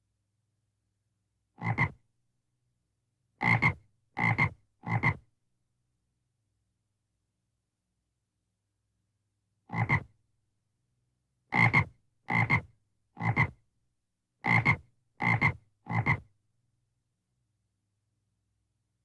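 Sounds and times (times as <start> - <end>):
frog croaking: 1.6 - 2.0, 3.4 - 5.2, 9.7 - 10.1, 11.6 - 13.5, 14.5 - 16.2.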